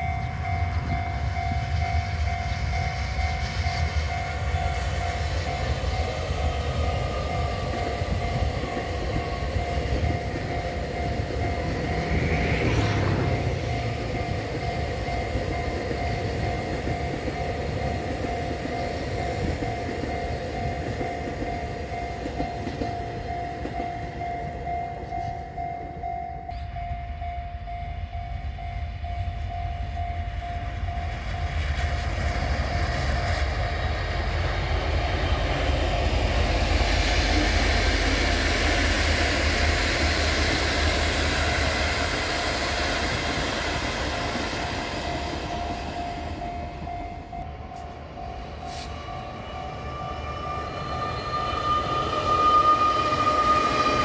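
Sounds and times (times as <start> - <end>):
locomotive train passing: 0.0 - 54.0
steady high tone: 0.0 - 54.0
train wheels and rail noise: 0.0 - 54.0.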